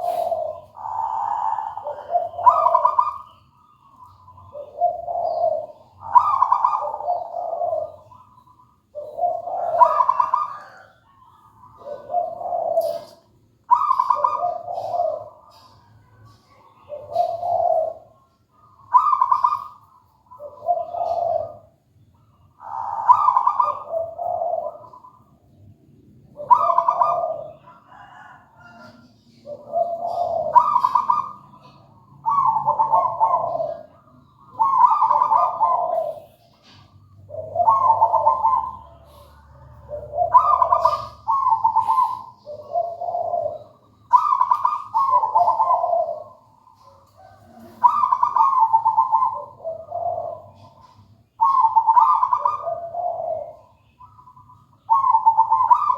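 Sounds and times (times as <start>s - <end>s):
dove cooing: 0.0s - 55.9s.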